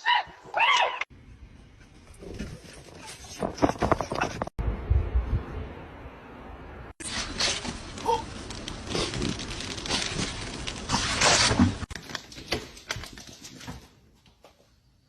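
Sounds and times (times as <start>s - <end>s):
rustling: 7.0s - 12.4s.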